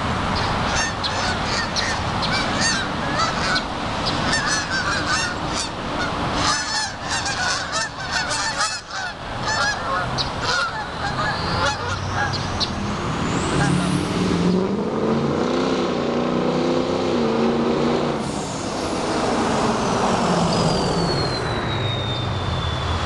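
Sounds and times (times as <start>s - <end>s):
engine rumbling: 0.0s - 23.0s
geese honking: 0.4s - 12.6s.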